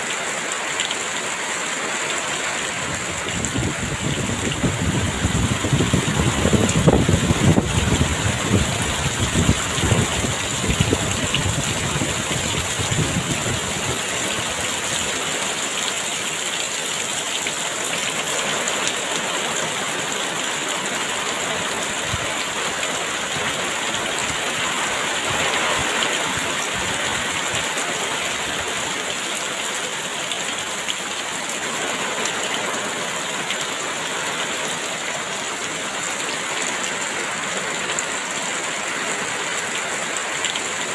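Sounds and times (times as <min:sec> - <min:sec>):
heavy rain pouring: 0:00.0 - 0:40.9
wind gusts rumbling: 0:02.8 - 0:14.9.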